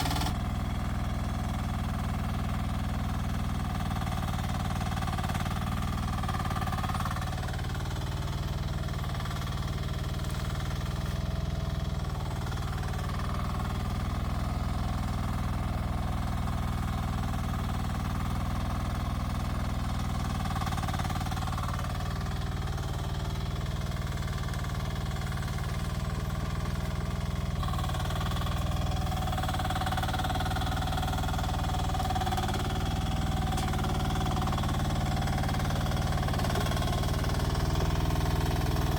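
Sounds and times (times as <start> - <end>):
excavator engine running: 0.0 - 0.8, 1.6 - 38.9.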